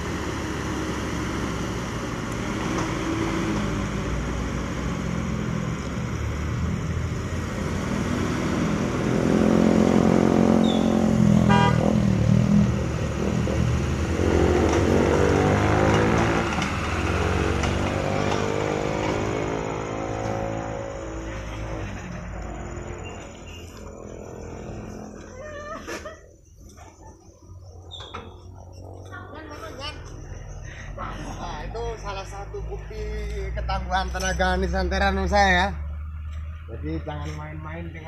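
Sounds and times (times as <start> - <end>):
engine revving hard: 7.4 - 22.8
horn-like toot: 11.4 - 11.9.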